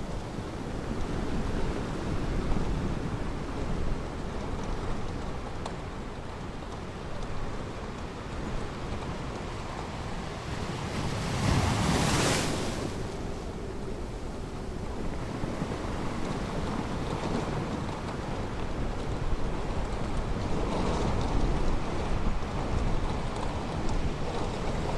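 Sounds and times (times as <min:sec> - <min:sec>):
ocean surf washing on beach: 0:00.0 - 0:24.9
wave breaking: 0:10.5 - 0:13.4.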